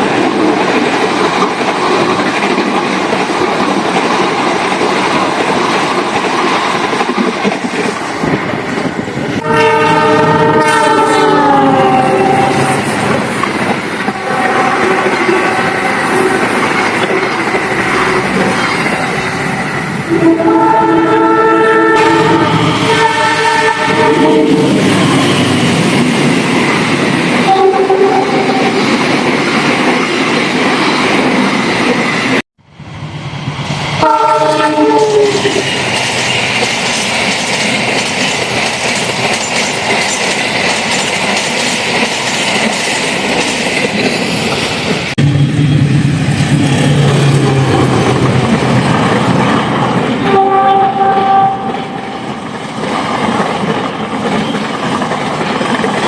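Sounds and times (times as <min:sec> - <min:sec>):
train wheels rumbling on rails: 0:00.0 - 0:56.0
locomotive horn: 0:09.4 - 0:12.9, 0:14.0 - 0:18.5, 0:20.1 - 0:25.3, 0:27.4 - 0:28.8, 0:34.0 - 0:35.7, 0:50.2 - 0:52.1.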